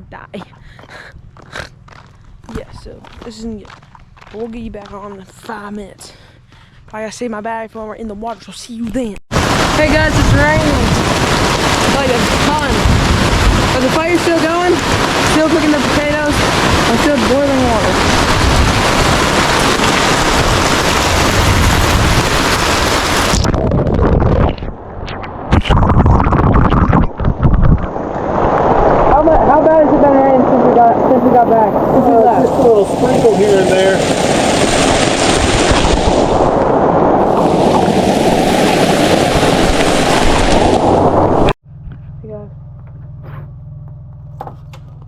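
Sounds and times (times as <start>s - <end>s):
heavy rain pouring: 9.3s - 24.5s, 28.0s - 41.6s
wind on microphone: 9.3s - 41.6s.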